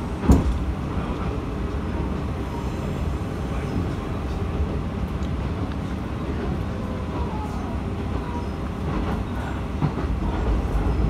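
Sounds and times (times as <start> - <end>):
railcar wheels rumbling on track: 0.0 - 11.0.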